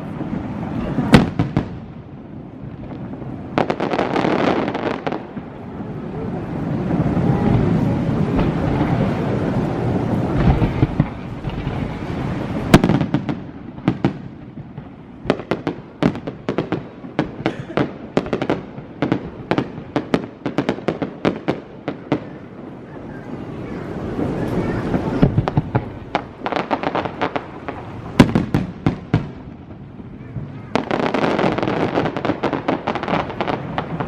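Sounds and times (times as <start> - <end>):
loud firework bang: 0.0 - 2.0, 6.8 - 22.3, 23.6 - 34.0
fireworks booming: 0.0 - 34.0
fireworks crackling pops: 0.0 - 34.0.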